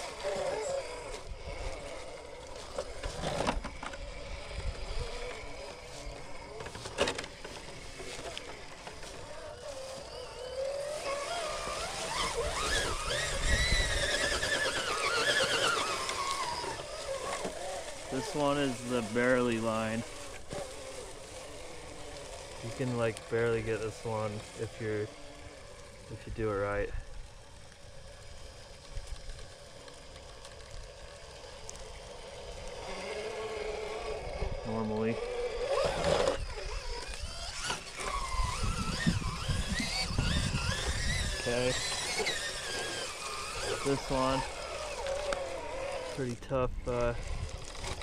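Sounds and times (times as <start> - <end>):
electric motor and gears whining: 0.0 - 48.0
faint clicks: 44.9 - 45.5.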